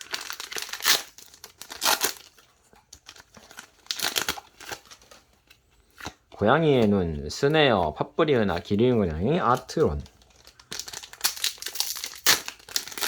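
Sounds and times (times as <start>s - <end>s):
wrapper crinkling and tearing: 0.0s - 6.2s, 9.4s - 13.0s.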